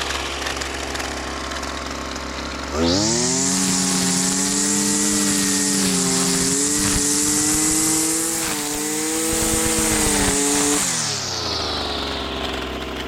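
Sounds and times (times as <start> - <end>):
string trimmer engine whining: 0.0 - 13.0.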